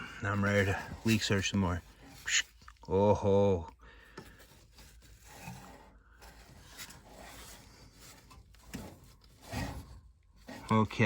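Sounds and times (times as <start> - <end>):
hands rubbing and scraping: 0.0 - 2.8.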